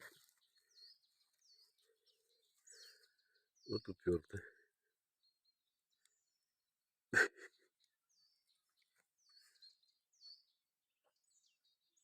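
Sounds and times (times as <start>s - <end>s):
small bird chirping: 0.0s - 4.4s, 7.4s - 12.0s.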